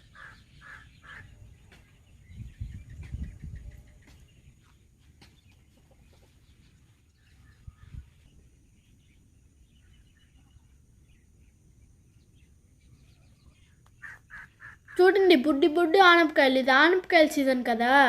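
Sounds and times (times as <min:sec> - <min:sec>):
chickens clucking: 0:02.9 - 0:08.4.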